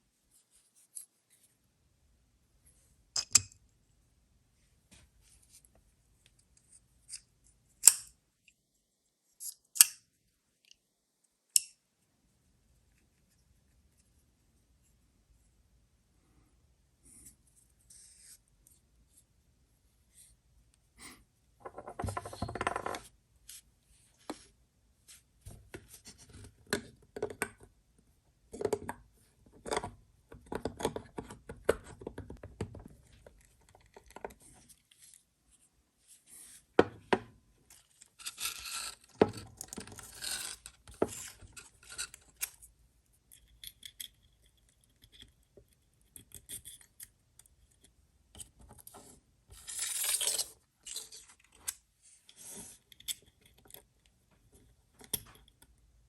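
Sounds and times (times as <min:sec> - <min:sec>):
clicks and taps of small parts: 0:03.2 - 0:03.6, 0:06.2 - 0:08.6, 0:09.4 - 0:10.0, 0:11.5 - 0:11.8
scraping of small parts: 0:37.7 - 0:42.7, 0:48.4 - 0:53.8.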